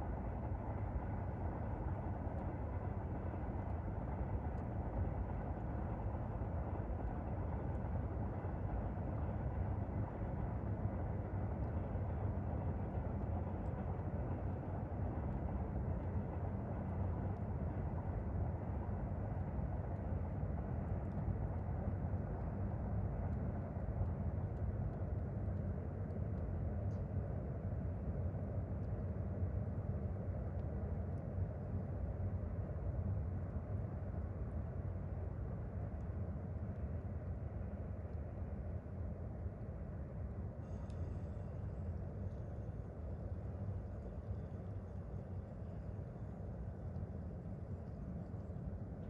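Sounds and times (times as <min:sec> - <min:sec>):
faint ticks: 0:40.6 - 0:42.6.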